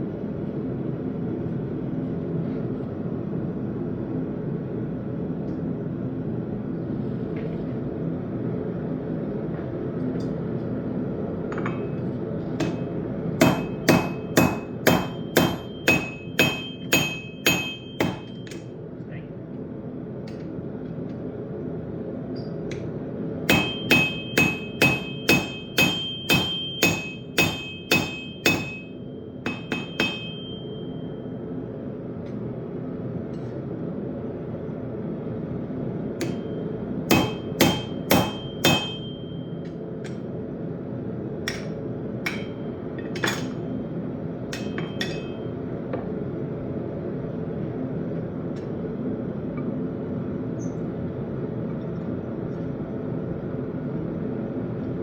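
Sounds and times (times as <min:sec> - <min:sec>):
steady low hum: 0:00.0 - 0:55.0
hammer striking steel on anvil: 0:11.5 - 0:18.7, 0:23.4 - 0:31.3, 0:36.2 - 0:40.3, 0:41.5 - 0:43.9, 0:44.5 - 0:46.1.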